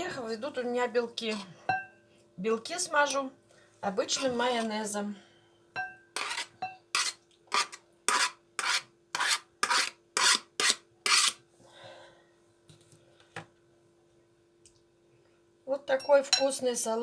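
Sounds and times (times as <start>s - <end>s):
food rasping on hand grater: 6.2s - 11.4s.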